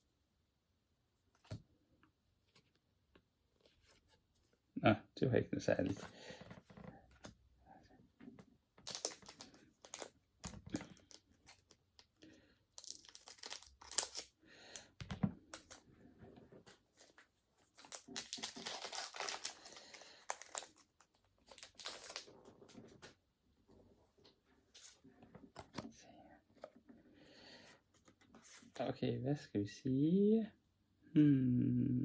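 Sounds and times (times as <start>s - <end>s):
foil wrapper tearing and crinkling: 8.8s - 10.1s, 12.8s - 14.3s, 17.8s - 22.3s.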